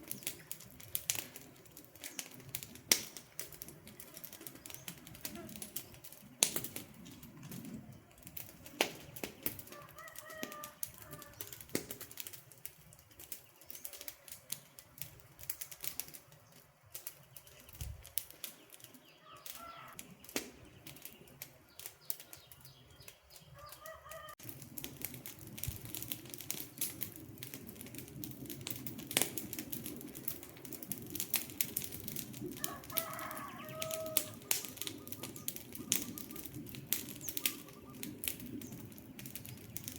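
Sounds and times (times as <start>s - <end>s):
wood fire crackling and popping: 0.0s - 39.9s
bird calling: 18.9s - 24.4s, 32.6s - 38.8s.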